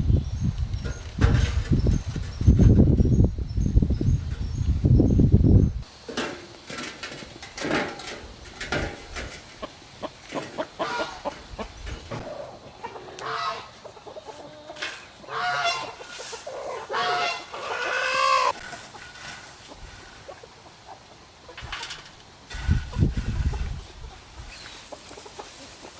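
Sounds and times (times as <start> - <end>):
chickens clucking: 6.0 - 25.9.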